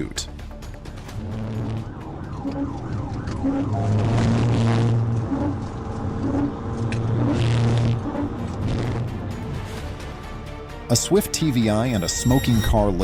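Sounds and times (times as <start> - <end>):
car engine and road drone: 0.4 - 10.5
police siren wailing: 1.2 - 7.3, 11.4 - 12.9.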